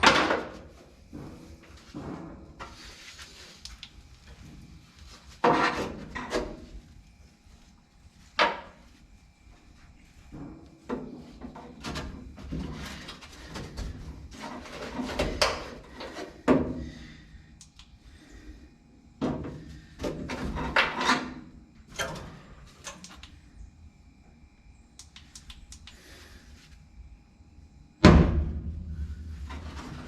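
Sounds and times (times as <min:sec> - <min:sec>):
metal clunks and scrapes: 0:00.0 - 0:03.2, 0:05.3 - 0:06.8, 0:10.3 - 0:16.8, 0:19.2 - 0:22.5, 0:28.4 - 0:30.0
light clicks: 0:17.6 - 0:18.0, 0:25.0 - 0:26.0.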